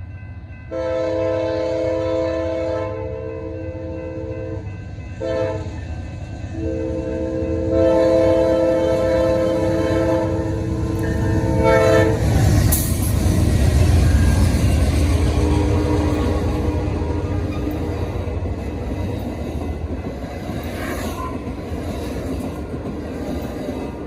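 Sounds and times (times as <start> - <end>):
train rumbling past: 0.0 - 24.0
locomotive air horn blasts: 0.7 - 4.6, 5.2 - 5.7, 6.6 - 12.3, 15.2 - 17.9.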